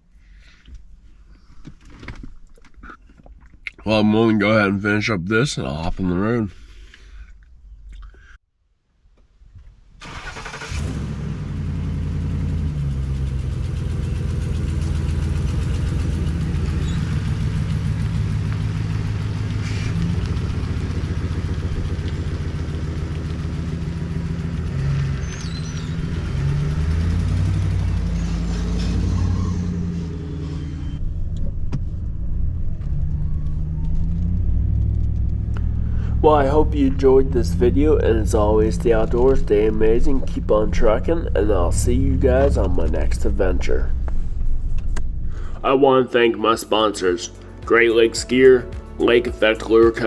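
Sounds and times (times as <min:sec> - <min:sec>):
pickup truck engine running: 0:10.0 - 0:45.9
road noise: 0:10.0 - 0:50.0.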